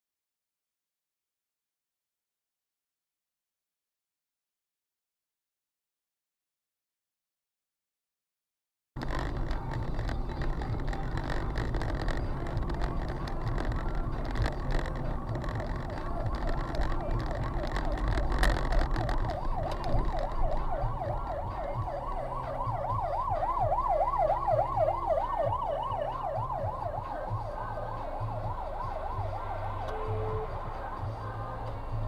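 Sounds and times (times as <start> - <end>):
road traffic rumble: 9.0 - 32.0
emergency siren yelping: 12.5 - 32.0.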